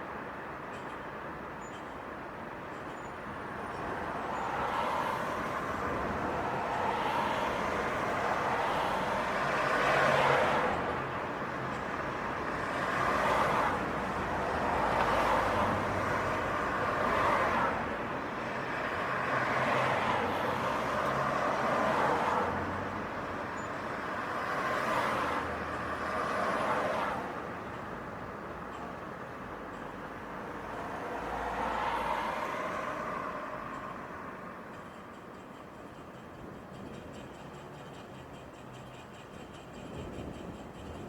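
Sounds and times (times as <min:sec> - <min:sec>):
cars passing: 0:04.4 - 0:11.0, 0:12.3 - 0:28.7, 0:29.3 - 0:34.7.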